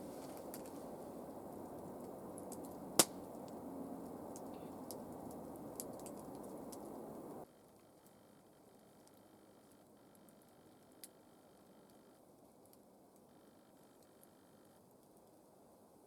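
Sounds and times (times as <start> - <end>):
low rushing noise: 0.0 - 7.4
sharp crack: 2.0 - 7.4
faint ticks: 2.4 - 15.5.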